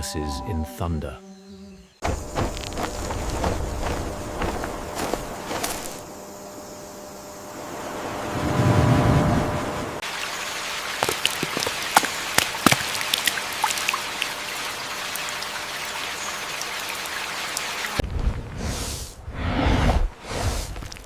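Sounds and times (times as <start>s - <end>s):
raindrops pattering close by: 10.0s - 17.9s
rain on foliage: 10.0s - 18.0s.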